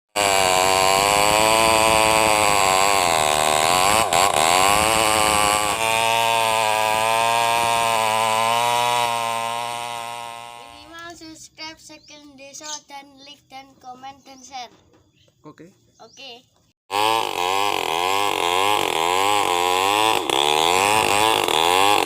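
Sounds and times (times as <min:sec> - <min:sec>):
chainsaw cutting at high revs: 0:00.1 - 0:11.2, 0:16.9 - 0:22.0.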